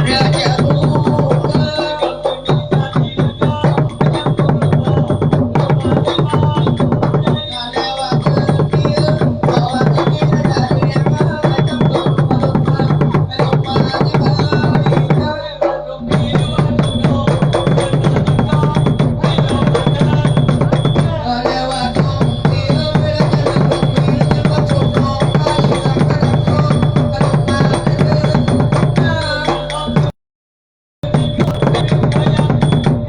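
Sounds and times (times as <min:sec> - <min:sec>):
fast dense drumming: 0:00.0 - 0:30.1, 0:31.0 - 0:33.0
steady held tones: 0:00.0 - 0:30.1, 0:31.0 - 0:33.0.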